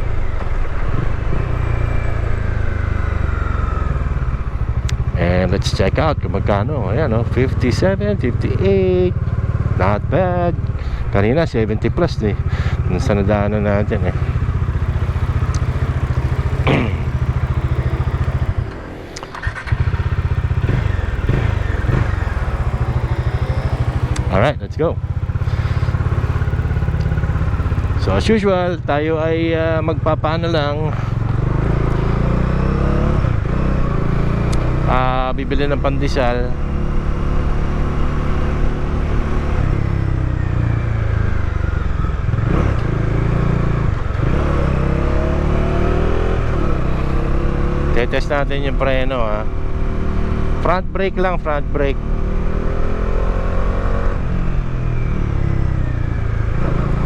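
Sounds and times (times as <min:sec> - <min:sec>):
motorcycle engine idling: 0:02.8 - 0:31.6.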